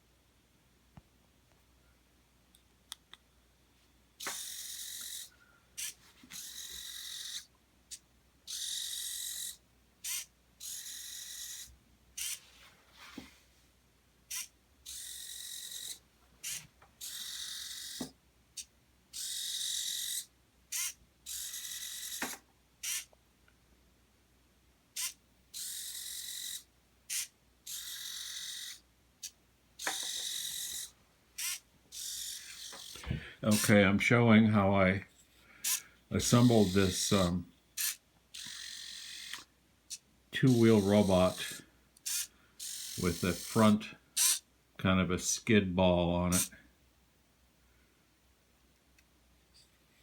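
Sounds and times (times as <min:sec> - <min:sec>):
small motors whirring in bursts: 0:04.2 - 0:12.5, 0:14.3 - 0:23.1, 0:25.0 - 0:33.7, 0:35.6 - 0:44.4.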